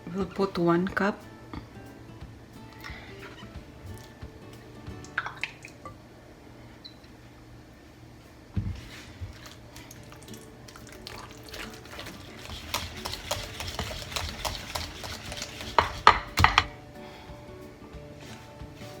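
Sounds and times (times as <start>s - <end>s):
utensil stirring in mixing bowl: 8.7s - 16.8s
knocks on a bowl: 15.8s - 16.8s.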